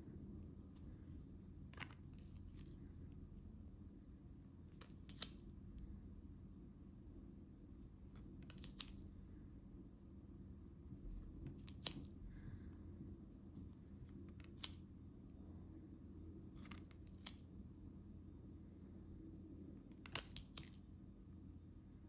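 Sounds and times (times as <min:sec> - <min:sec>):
low room hum: 0:00.0 - 0:22.0
photo cards clicking and scraping: 0:00.7 - 0:02.9, 0:04.7 - 0:05.5, 0:08.0 - 0:09.2, 0:11.1 - 0:12.2, 0:13.6 - 0:14.9, 0:16.4 - 0:17.5, 0:19.8 - 0:20.9.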